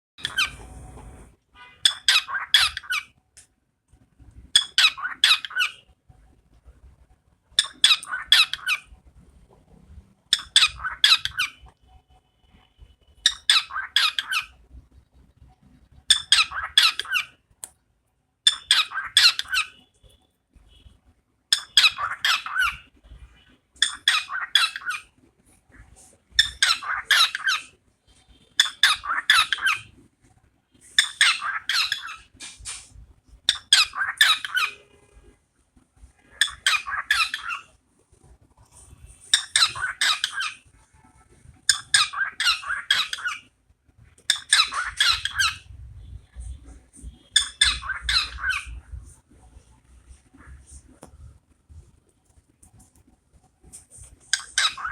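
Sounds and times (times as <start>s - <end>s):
bird squawking: 1.8s - 3.1s, 13.2s - 14.6s, 16.1s - 17.4s, 18.5s - 19.8s, 21.5s - 22.8s, 23.8s - 25.1s, 26.4s - 27.7s, 28.6s - 29.9s, 31.0s - 32.3s, 33.5s - 35.0s, 36.4s - 37.7s, 39.3s - 40.6s, 41.7s - 43.4s, 44.3s - 45.7s, 47.0s - 48.8s, 54.3s - 54.9s.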